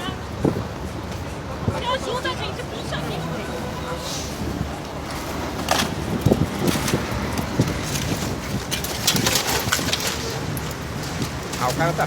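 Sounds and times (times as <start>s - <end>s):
wind rumbling on microphone: 0.0s - 12.0s
crackling rustles: 4.0s - 12.0s.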